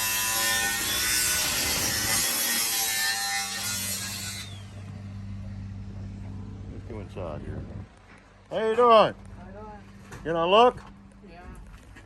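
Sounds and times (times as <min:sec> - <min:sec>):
power saw cutting wood: 0:00.0 - 0:05.2
steady low hum: 0:04.0 - 0:12.0.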